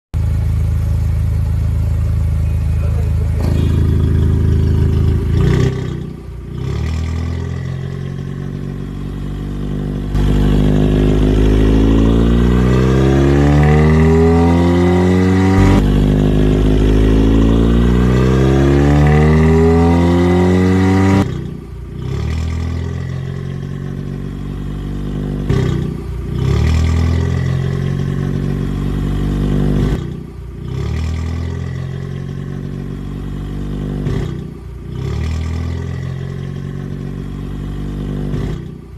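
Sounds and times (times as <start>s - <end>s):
second engine revving: 0.2s - 38.9s
engine revving up and down: 2.9s - 38.9s.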